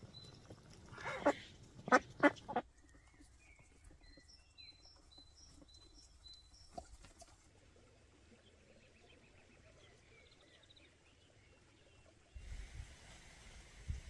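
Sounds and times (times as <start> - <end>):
small birds chirping: 0.0 - 7.5.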